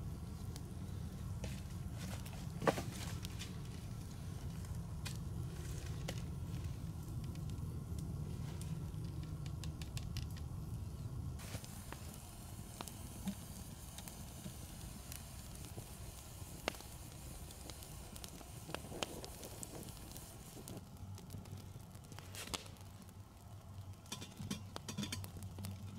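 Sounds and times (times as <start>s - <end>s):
burning wood popping: 0.0s - 25.9s
campfire crackling: 0.0s - 25.9s
thin hiss: 10.8s - 20.8s.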